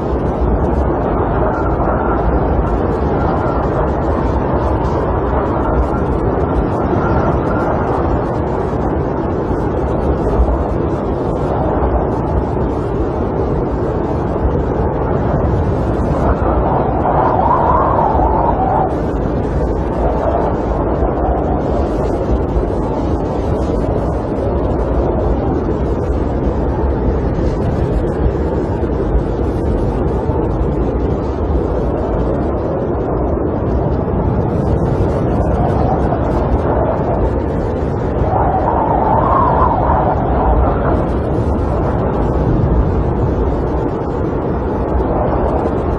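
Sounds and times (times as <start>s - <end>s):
snowstorm wind blowing: 0.0s - 45.9s.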